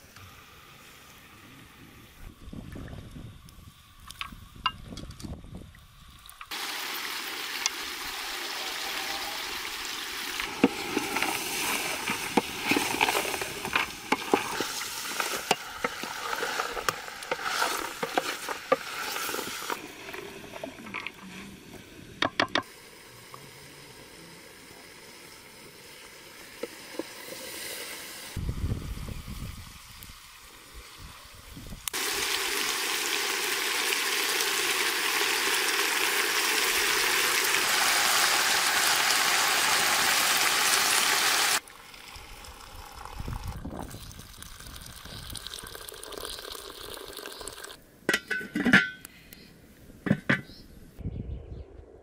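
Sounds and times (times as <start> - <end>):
meat sizzling in a pot: 6.5 - 21.7, 22.6 - 43.1
spoon scraping against pot: 10.7 - 19.8.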